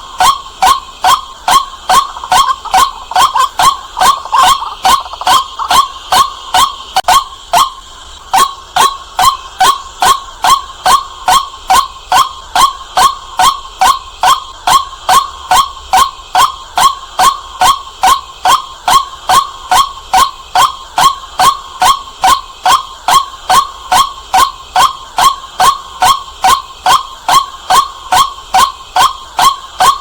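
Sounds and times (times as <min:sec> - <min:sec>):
bird calling repeated note: 0:00.0 - 0:07.0.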